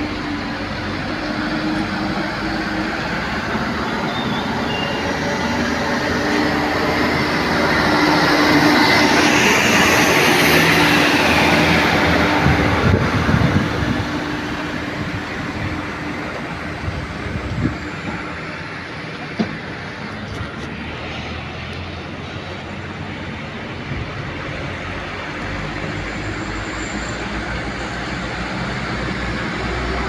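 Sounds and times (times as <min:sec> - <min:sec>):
heavy truck engine passing: 0:00.0 - 0:30.0.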